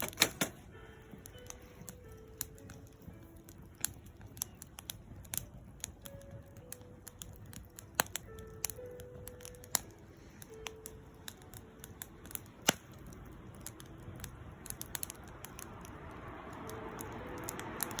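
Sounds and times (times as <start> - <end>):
sharp pops of fire: 0.0 - 18.0
wood fire crackling: 0.0 - 18.0.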